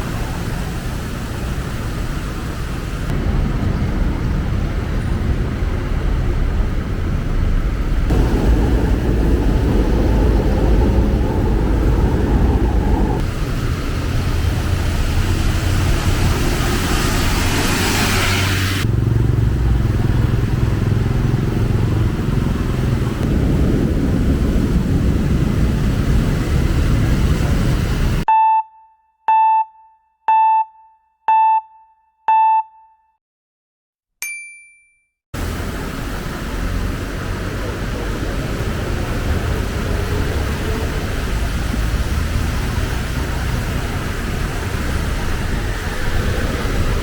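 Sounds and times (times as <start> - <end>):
street traffic rumble: 0.0 - 28.3, 35.4 - 47.0
short electronic beeps: 28.3 - 33.1.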